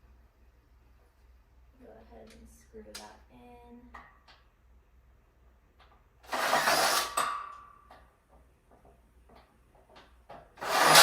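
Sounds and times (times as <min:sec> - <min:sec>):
screw driven into metal: 0:06.2 - 0:08.0, 0:10.6 - 0:11.0.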